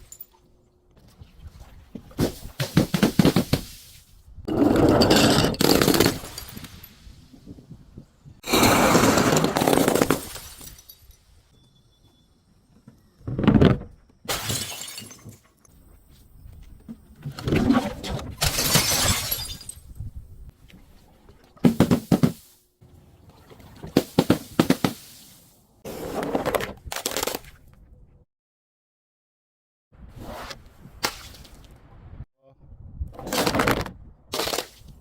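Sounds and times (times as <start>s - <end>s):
glass bottles shattering: 5.0s - 7.0s, 8.5s - 11.4s, 14.3s - 15.5s, 18.4s - 19.9s.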